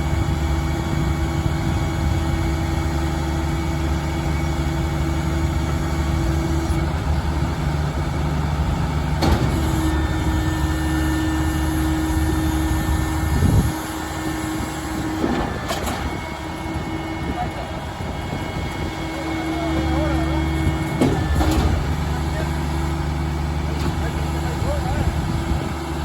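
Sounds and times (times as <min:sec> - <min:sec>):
diesel truck engine running: 0:00.0 - 0:26.0
steady whine: 0:00.0 - 0:26.0
metal clank: 0:20.9 - 0:22.2.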